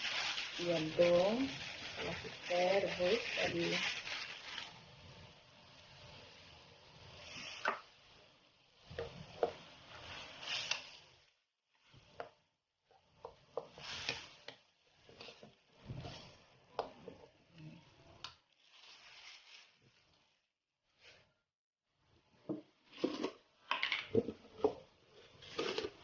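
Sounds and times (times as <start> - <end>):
spatula scraping in a pot: 25.1 - 26.0.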